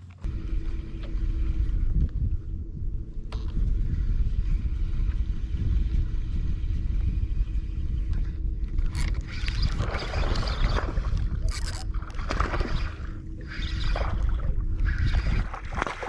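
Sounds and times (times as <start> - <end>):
steady low rumble: 0.0 - 16.0
water splashing against boat: 8.9 - 16.0.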